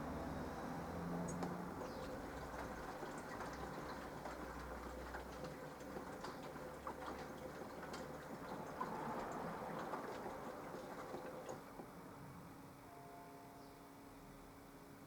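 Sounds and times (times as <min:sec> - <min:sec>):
washing machine humming: 0:01.6 - 0:12.2
faint steady tone: 0:12.3 - 0:15.0.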